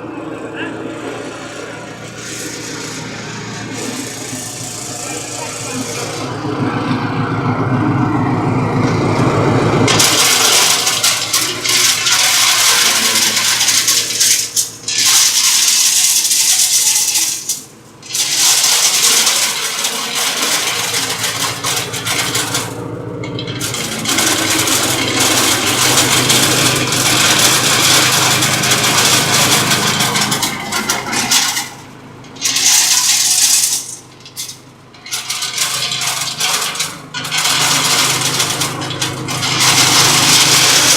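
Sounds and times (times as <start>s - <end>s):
machine hum: 0.0s - 40.9s
nuts rattling and cracking: 9.9s - 40.9s.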